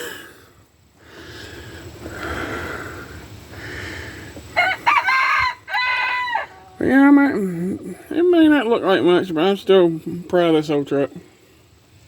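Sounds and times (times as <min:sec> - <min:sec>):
rooster crowing: 0:04.6 - 0:06.8.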